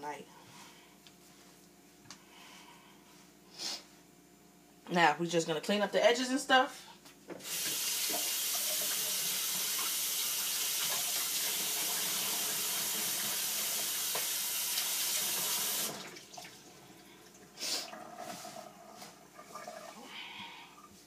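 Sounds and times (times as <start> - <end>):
kitchen faucet running into sink: 7.4 - 16.7.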